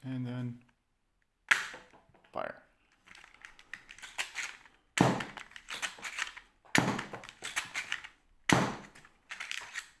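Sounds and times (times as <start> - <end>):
dart revolver shot snapping: 1.5 - 1.9, 8.5 - 9.0.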